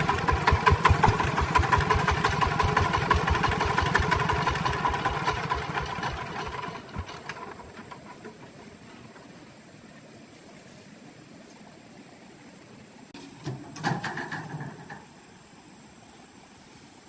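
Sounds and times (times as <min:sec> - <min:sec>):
truck engine idling: 0:00.0 - 0:08.8
faint hiss: 0:06.5 - 0:17.0.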